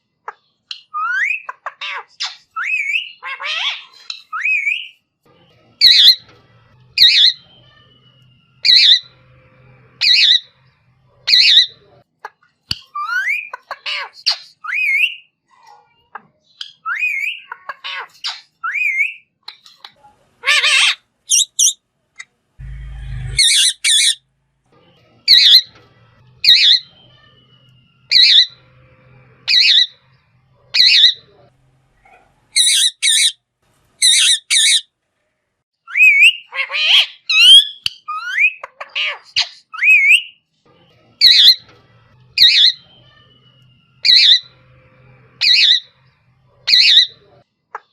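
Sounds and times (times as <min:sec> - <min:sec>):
parrot squawking: 0:00.8 - 0:04.9, 0:05.8 - 0:06.3, 0:07.0 - 0:08.0, 0:08.6 - 0:09.3, 0:10.0 - 0:10.6, 0:11.2 - 0:12.0, 0:20.4 - 0:21.8, 0:22.6 - 0:24.2, 0:26.4 - 0:28.8, 0:29.4 - 0:30.1, 0:30.7 - 0:31.3, 0:32.1 - 0:33.4, 0:34.0 - 0:34.9, 0:35.9 - 0:40.4, 0:41.2 - 0:41.6, 0:42.4 - 0:43.4, 0:44.0 - 0:44.6, 0:45.4 - 0:47.9
parrot whistled calls: 0:08.6 - 0:09.2, 0:26.4 - 0:28.6, 0:35.8 - 0:38.6, 0:42.4 - 0:44.6.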